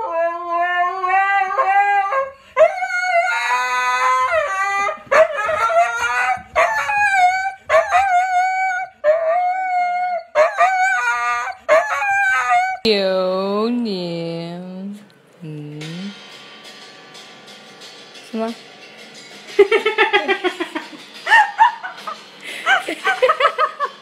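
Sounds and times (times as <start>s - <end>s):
dog howling: 0.0s - 12.9s
second dog howling lower: 0.0s - 12.9s.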